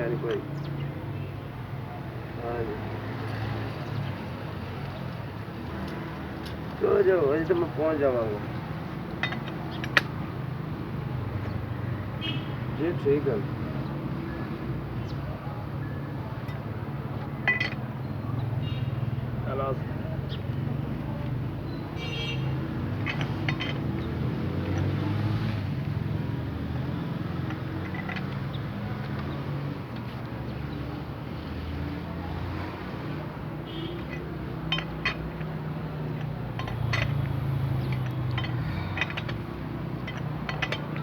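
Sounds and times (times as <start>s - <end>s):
vehicle engine rumbling: 3.9s - 12.4s, 16.2s - 41.0s
metallic clinks of tools: 9.2s - 10.2s, 17.4s - 17.9s, 22.9s - 25.1s, 33.7s - 41.0s.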